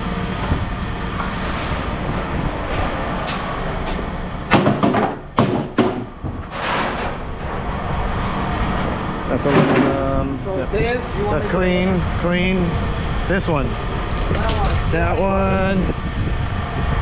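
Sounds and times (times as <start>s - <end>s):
engine running: 0.0s - 17.0s
scrap metal clanking: 6.3s - 7.7s.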